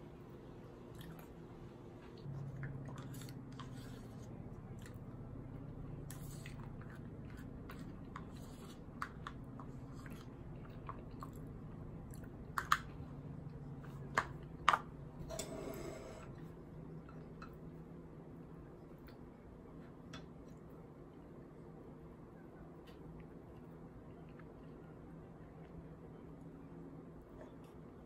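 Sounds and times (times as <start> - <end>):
steady low hum: 0.0 - 28.0
chewing: 9.1 - 12.5.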